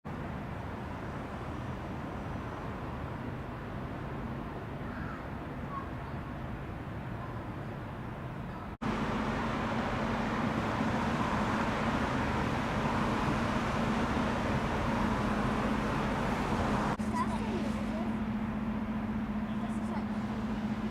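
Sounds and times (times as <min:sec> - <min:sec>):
traffic noise: 0:00.0 - 0:20.9
steady low hum: 0:08.8 - 0:20.9.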